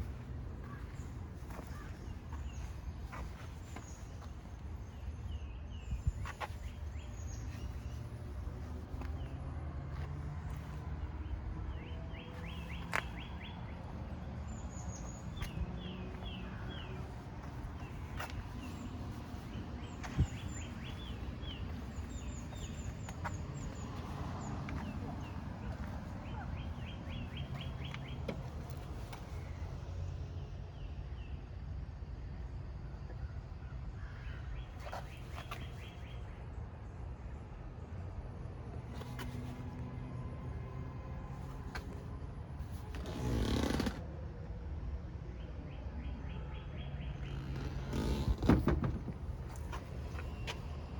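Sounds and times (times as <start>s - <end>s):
birds chirping: 0.0s - 30.2s, 46.3s - 50.9s.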